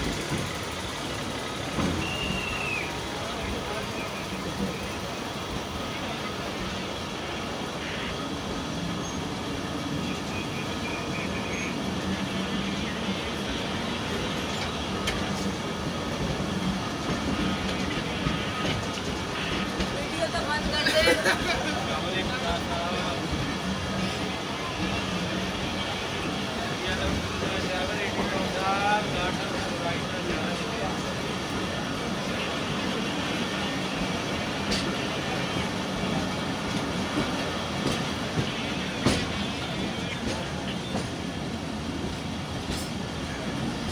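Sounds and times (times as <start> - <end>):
train wheels rumbling and rattling: 0.0 - 43.9.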